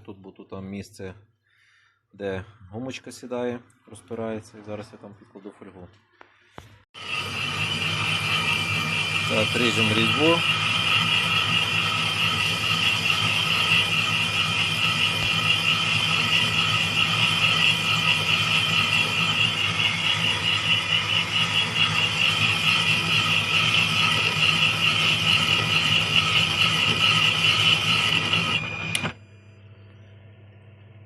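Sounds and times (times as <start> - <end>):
metal lathe high whine: 7.0 - 29.2.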